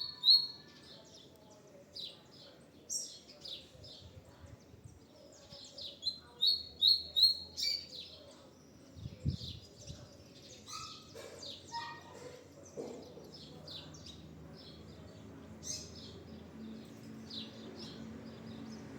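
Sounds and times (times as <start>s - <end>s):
bird singing high chirps: 0.0s - 1.3s, 5.4s - 12.2s.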